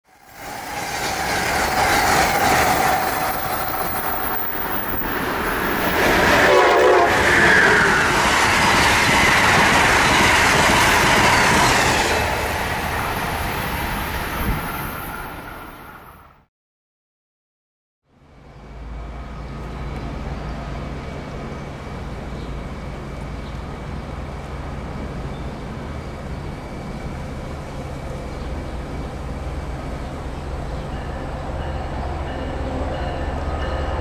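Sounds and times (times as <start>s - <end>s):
train running past: 0.1s - 16.5s, 18.2s - 34.0s
train horn: 5.7s - 8.2s.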